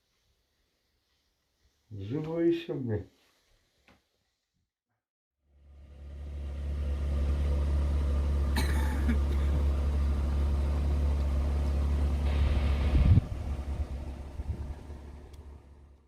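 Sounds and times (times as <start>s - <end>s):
vehicle engine humming: 5.5s - 16.0s.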